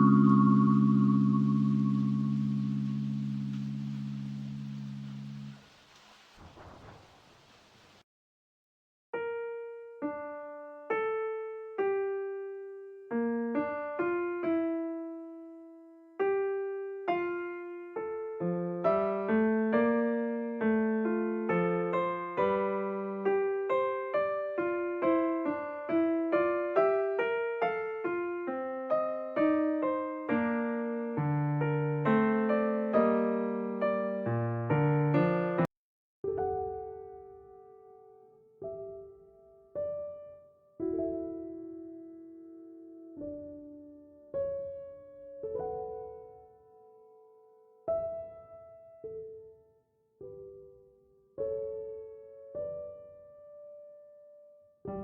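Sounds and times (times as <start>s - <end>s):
slow electric piano melody: 0.0s - 5.6s, 9.2s - 35.7s, 36.3s - 55.0s.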